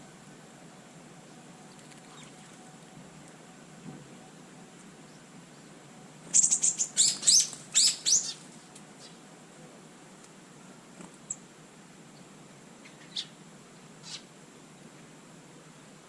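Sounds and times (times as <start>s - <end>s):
songbird chirping: 0.7s - 3.6s, 4.2s - 9.3s, 11.2s - 15.2s.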